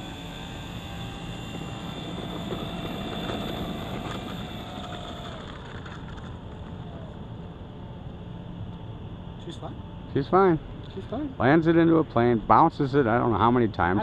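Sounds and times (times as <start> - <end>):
electric motor whining: 0.0 - 7.6.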